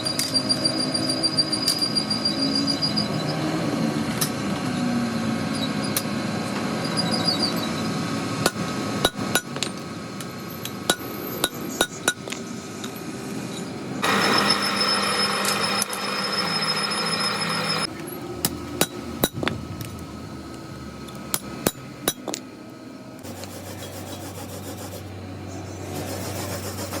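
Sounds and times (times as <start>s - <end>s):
steady low hum: 8.1s - 27.0s.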